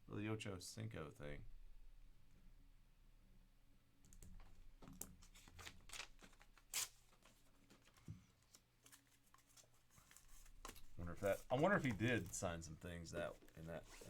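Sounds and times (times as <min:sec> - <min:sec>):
trading cards clicking and rustling: 0:04.3 - 0:14.0.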